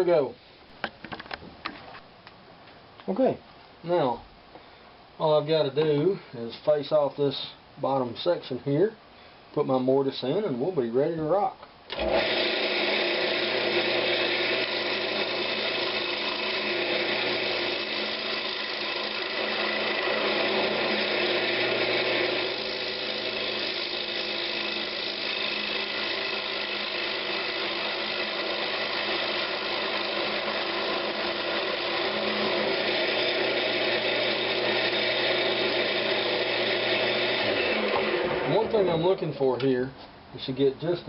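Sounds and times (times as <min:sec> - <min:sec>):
wood lathe running: 0:11.9 - 0:39.2
turning tool cutting wood: 0:11.9 - 0:39.4.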